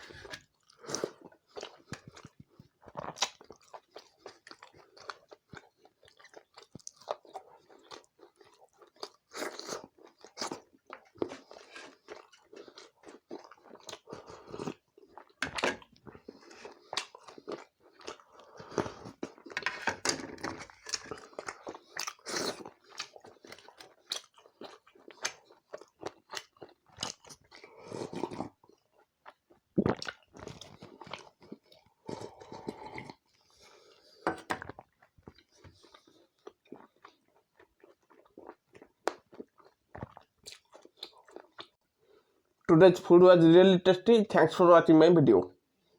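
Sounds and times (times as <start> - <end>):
close chewing and biting: 0.0 - 42.5.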